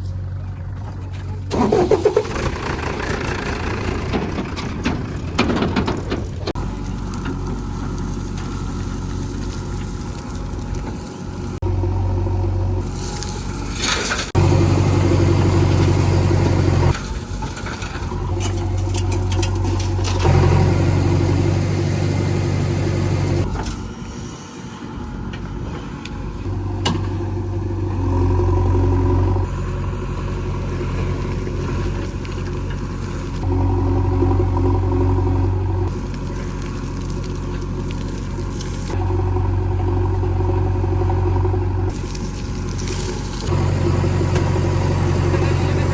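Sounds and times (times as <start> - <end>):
heavy diesel engine running: 0.0 - 45.9.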